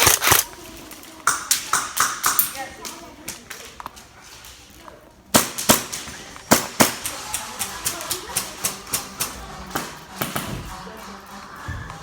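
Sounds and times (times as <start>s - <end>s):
airsoft guns firing: 0.0s - 0.5s, 1.2s - 2.7s, 5.3s - 10.5s.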